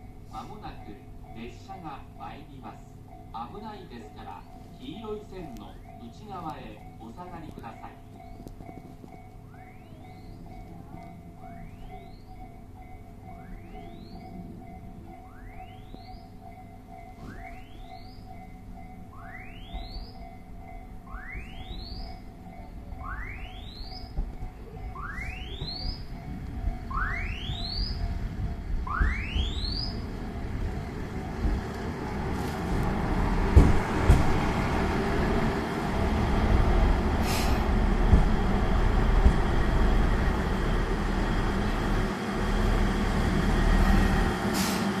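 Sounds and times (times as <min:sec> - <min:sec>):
diesel railcar engine and wheels: 0:00.0 - 0:45.0
electronic warning tone sweep: 0:13.3 - 0:32.7.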